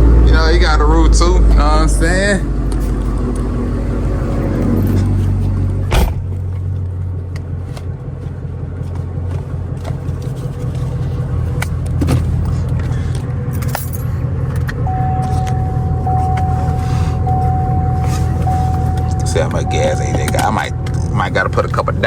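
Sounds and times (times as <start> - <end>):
car engine running: 0.0 - 22.0
light clicks and jingles: 12.4 - 15.6
steady high tone: 14.8 - 22.0.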